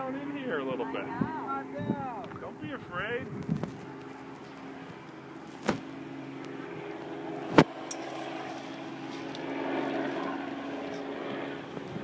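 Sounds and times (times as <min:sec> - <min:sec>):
helicopter droning: 0:00.0 - 0:12.0.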